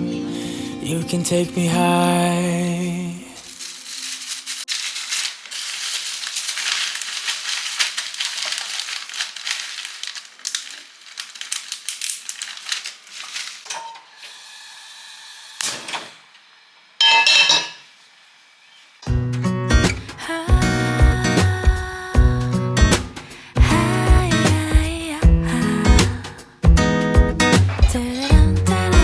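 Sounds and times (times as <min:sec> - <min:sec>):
utensils and dishes clattering: 0:17.0 - 0:17.8, 0:27.5 - 0:28.4.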